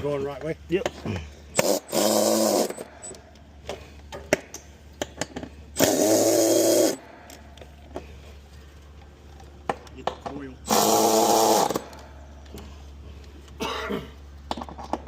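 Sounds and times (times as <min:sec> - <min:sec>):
power drill whirring: 0:01.5 - 0:03.2, 0:05.8 - 0:07.1, 0:10.6 - 0:12.0.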